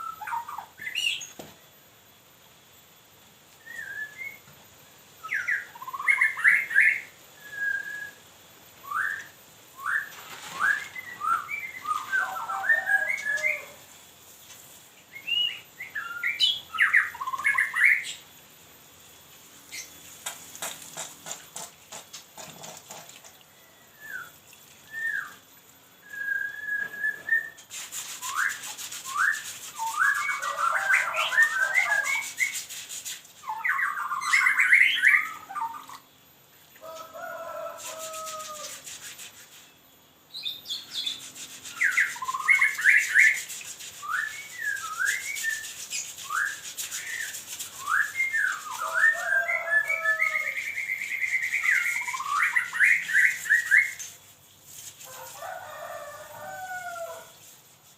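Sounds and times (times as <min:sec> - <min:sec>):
songbird whistling and chirping: 0:00.0 - 0:01.4, 0:03.6 - 0:04.5, 0:05.2 - 0:13.8, 0:15.1 - 0:18.2, 0:23.5 - 0:32.8, 0:33.4 - 0:36.1, 0:40.3 - 0:54.2
scratchy hiss: 0:00.0 - 0:57.9.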